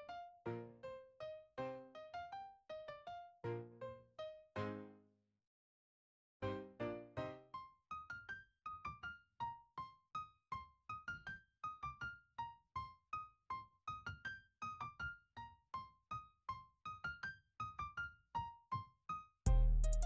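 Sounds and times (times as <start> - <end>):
light keyboard melody: 0.0 - 5.0, 6.4 - 7.7, 19.5 - 20.0.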